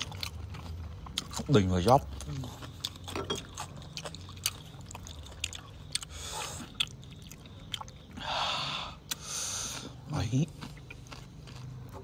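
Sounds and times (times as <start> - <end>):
person chewing: 0.0 - 12.0
breathy hisses of air: 8.2 - 9.9.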